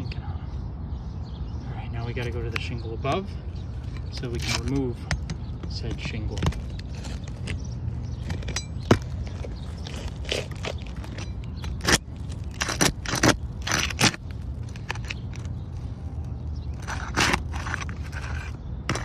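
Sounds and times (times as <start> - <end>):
tool scraping shingles: 3.8 - 15.6, 16.6 - 19.0
shingles cracking: 5.7 - 15.6, 16.8 - 19.0.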